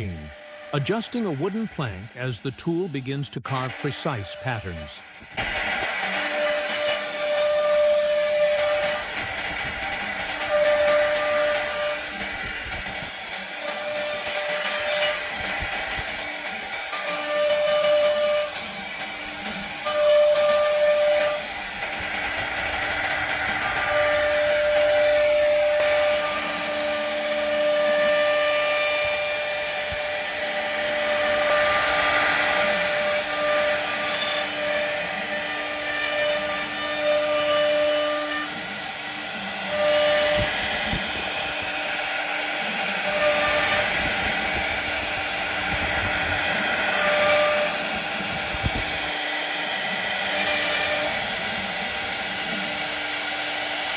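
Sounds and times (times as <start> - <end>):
router spindle whining: 21.0 - 53.9
bit cutting wood hiss: 22.1 - 38.6.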